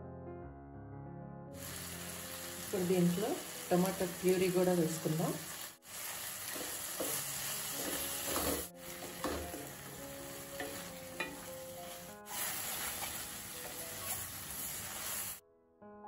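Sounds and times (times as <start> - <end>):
vegetables sizzling in a pan: 1.6 - 15.4
wooden spatula scraping a pan: 6.4 - 15.4.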